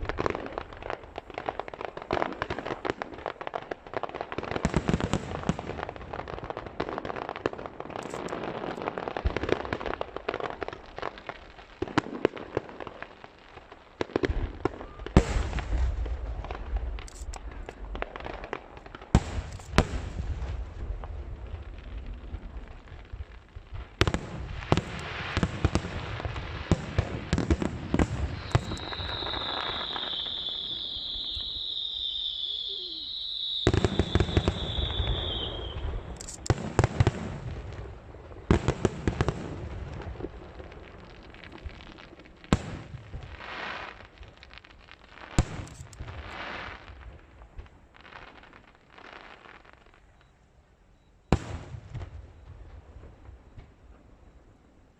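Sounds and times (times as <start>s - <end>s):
fireworks crackling: 0.0s - 50.4s
high-pitched firework whistle: 14.7s - 15.4s, 28.0s - 36.6s, 45.4s - 46.7s
fireworks shells bursting: 17.0s - 17.5s, 28.0s - 36.8s, 45.4s - 46.5s.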